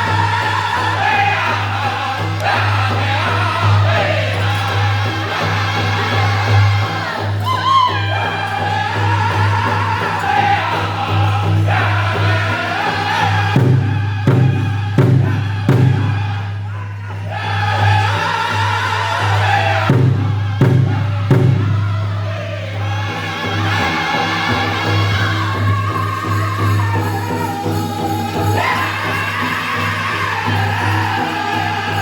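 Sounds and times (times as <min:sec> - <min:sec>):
group singing in high voices: 0:00.0 - 0:32.0
large drum beaten steadily: 0:08.0 - 0:32.0.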